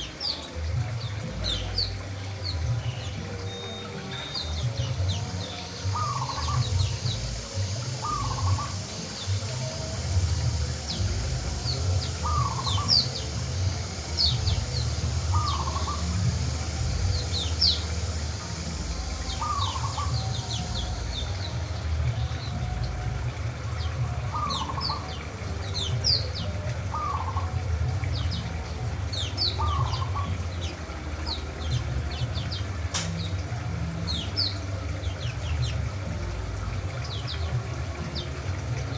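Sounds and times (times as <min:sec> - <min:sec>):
birds chirping high: 0:00.0 - 0:38.9
lower bird call: 0:00.0 - 0:38.9
steady low rumble: 0:04.2 - 0:38.9.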